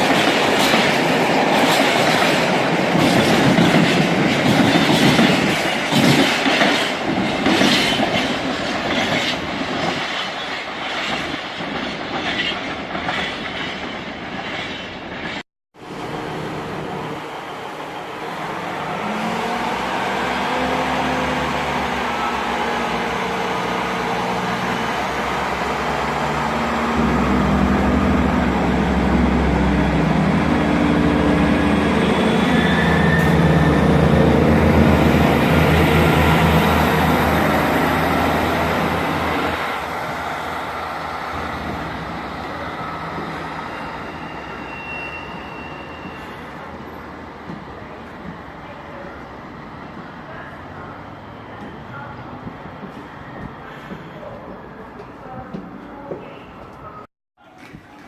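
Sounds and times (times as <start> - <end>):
train wheels clattering over rail joints: 0.0 - 15.4
diesel train engine humming: 15.8 - 44.7.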